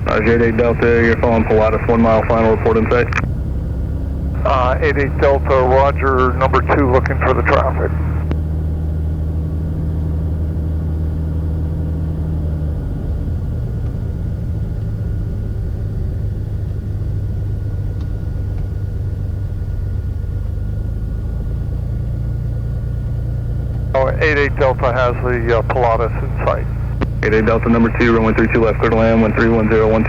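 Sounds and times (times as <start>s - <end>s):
faint high whine: 0.0s - 3.3s, 4.4s - 8.4s, 23.9s - 30.0s
piston aircraft engine drone: 0.0s - 30.0s.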